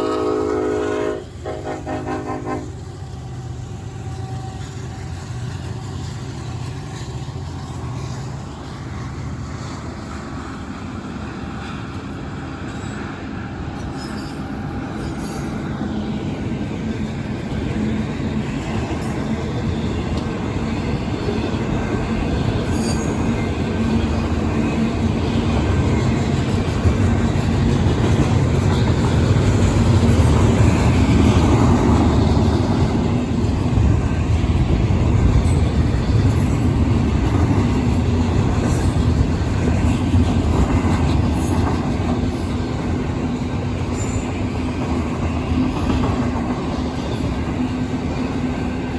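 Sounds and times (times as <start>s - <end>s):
freight train rumbling by: 0.0s - 48.9s.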